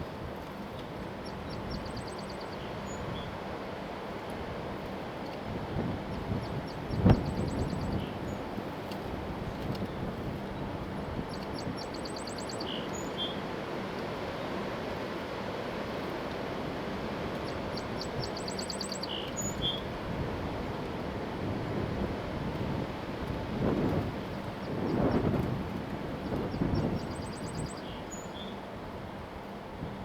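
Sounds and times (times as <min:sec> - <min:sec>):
wind rumbling on microphone: 0:05.5 - 0:12.2, 0:19.4 - 0:27.8
songbird trilling: 0:11.3 - 0:13.4, 0:17.4 - 0:19.8, 0:26.7 - 0:28.6.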